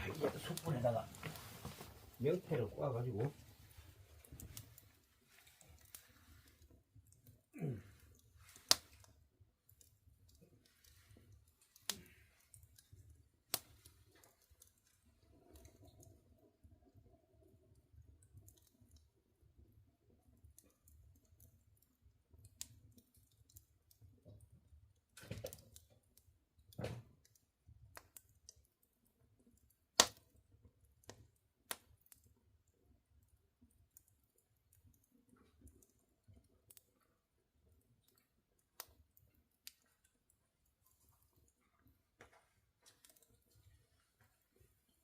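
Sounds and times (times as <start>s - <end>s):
fire crackling and popping: 0.0s - 45.0s
loud snap of fire: 7.6s - 8.9s, 30.0s - 30.2s.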